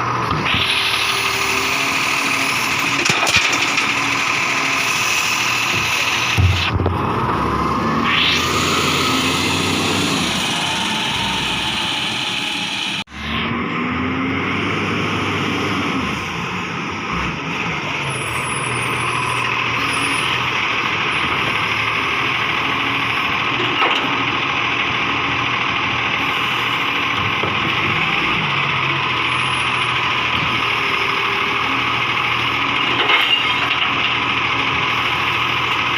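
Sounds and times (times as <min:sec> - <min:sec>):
garbage truck engine running: 0:00.0 - 0:35.9
short rising tone: 0:06.4 - 0:14.2.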